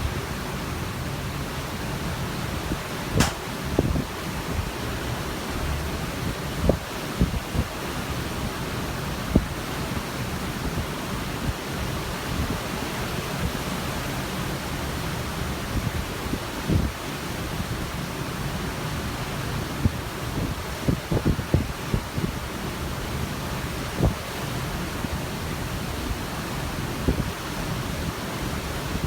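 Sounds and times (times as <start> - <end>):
wind buffeting microphone: 2.6 - 5.0.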